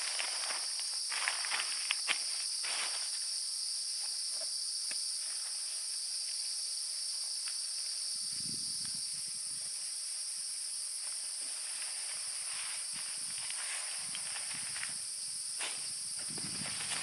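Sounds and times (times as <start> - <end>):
forest insects buzzing: 0.0 - 17.0
soft low rustle: 15.6 - 17.0.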